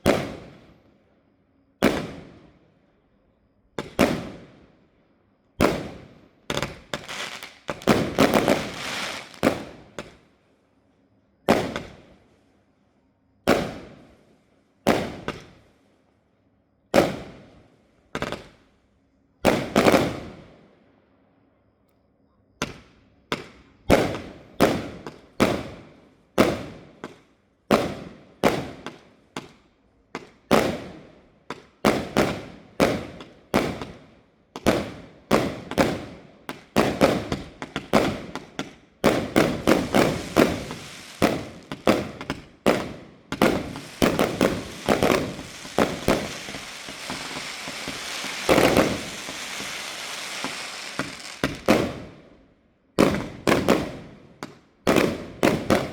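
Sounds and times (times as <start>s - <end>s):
fireworks bursting: 5.6s - 10.2s, 36.8s - 52.2s
fireworks crackling: 5.7s - 10.0s, 39.1s - 52.2s.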